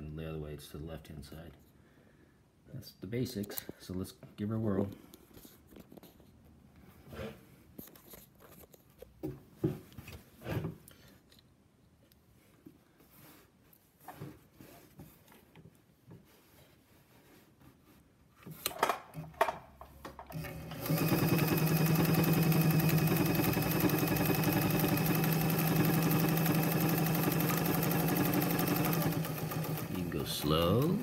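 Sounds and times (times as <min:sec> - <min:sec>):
sewing machine clicks: 0:20.3 - 0:31.0
sewing machine running: 0:20.3 - 0:31.0.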